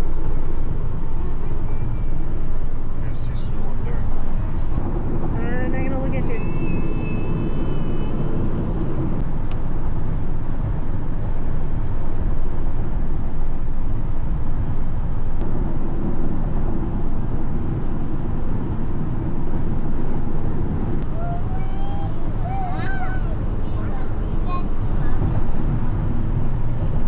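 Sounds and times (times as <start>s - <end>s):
road and engine rumble in van: 0.0s - 27.0s.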